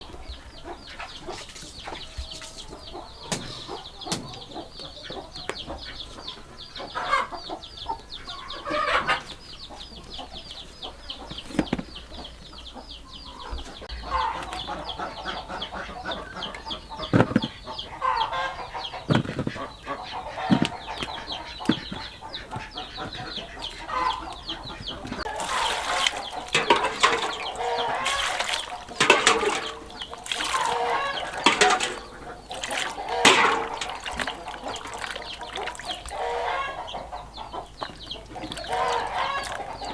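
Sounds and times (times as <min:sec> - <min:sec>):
birds chirping rapidly: 0:00.0 - 0:39.9
lower clucking calls: 0:00.0 - 0:39.9
sharp knocks: 0:03.3 - 0:04.4.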